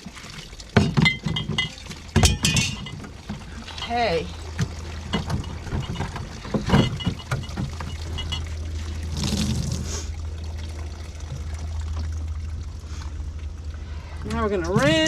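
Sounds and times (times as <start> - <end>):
water sloshing and splashing: 0.0 - 15.0
dishes clinking in water: 0.7 - 9.0.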